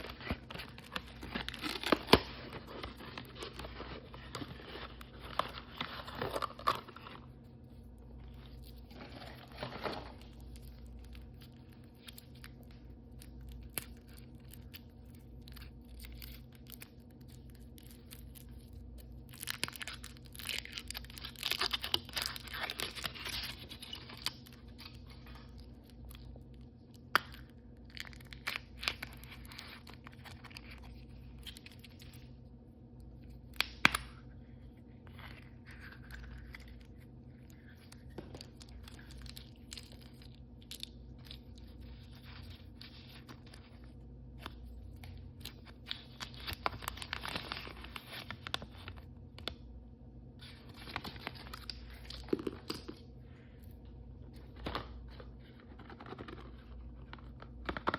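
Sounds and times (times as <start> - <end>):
packaging crinkling and tearing: 0.0 - 49.6, 50.4 - 53.0, 54.3 - 57.9.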